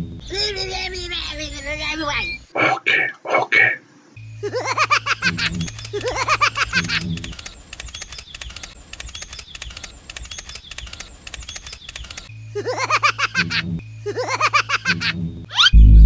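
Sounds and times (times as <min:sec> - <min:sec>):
rapid clicks: 0:04.7 - 0:13.6.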